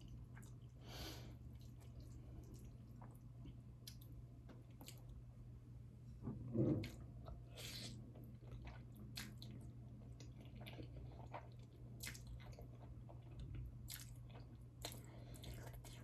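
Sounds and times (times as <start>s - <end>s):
person chewing wet clicks: 1.6s - 5.2s, 8.4s - 16.0s.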